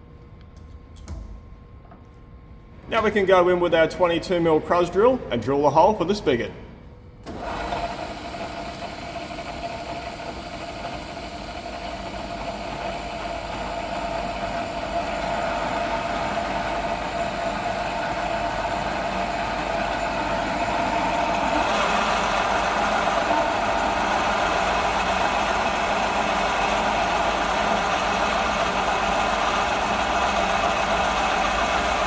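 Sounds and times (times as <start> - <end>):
milling machine drilling steel: 7.5 - 32.0.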